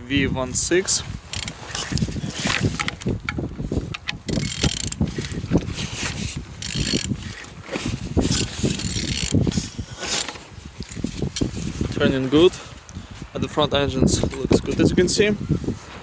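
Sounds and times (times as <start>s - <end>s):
engine turned by hand clicking: 1.3s - 11.6s.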